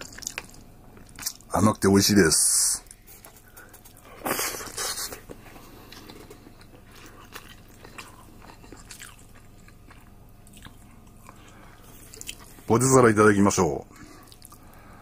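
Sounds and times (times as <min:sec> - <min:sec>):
person chewing with wet clicks: 0:00.0 - 0:01.5, 0:05.1 - 0:12.7, 0:14.1 - 0:14.8.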